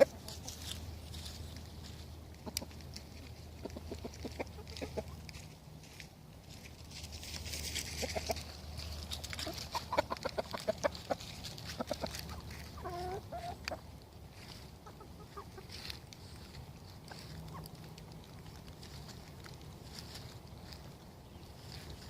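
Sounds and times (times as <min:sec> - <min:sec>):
chickens clucking: 0:00.0 - 0:22.0
chicken drawn-out call: 0:07.6 - 0:13.8.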